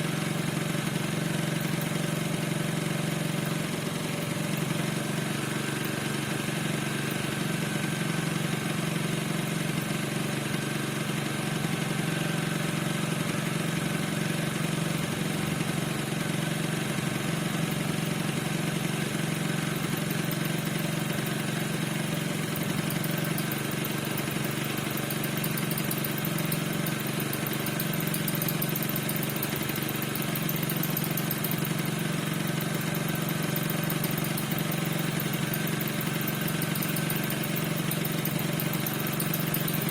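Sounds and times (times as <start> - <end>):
scooter engine idling: 0.0 - 39.9.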